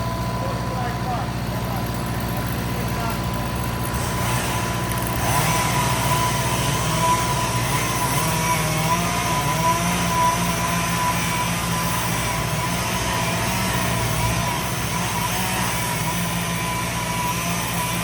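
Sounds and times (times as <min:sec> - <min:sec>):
skid steer engine running: 0:00.0 - 0:18.0.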